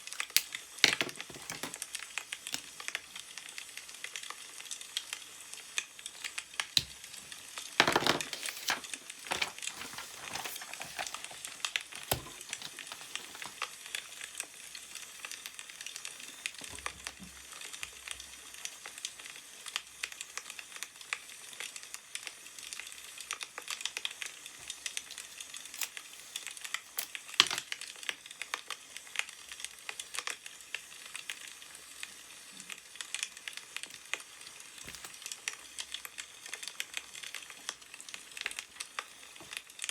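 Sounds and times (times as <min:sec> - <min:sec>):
wood fire crackling and popping: 0:00.0 - 0:39.9
newspaper pages rustling: 0:01.0 - 0:02.1, 0:07.8 - 0:15.1.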